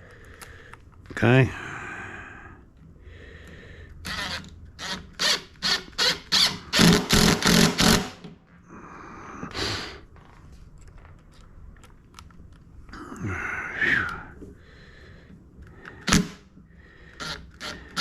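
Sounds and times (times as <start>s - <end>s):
impact driver driving screw into wood: 4.0s - 8.3s, 16.0s - 16.4s, 17.2s - 18.0s.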